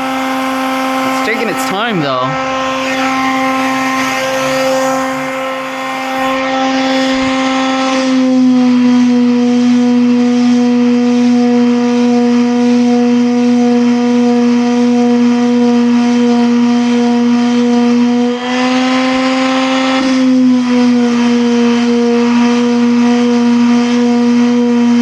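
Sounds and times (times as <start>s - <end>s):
machine humming: 0.0s - 15.2s.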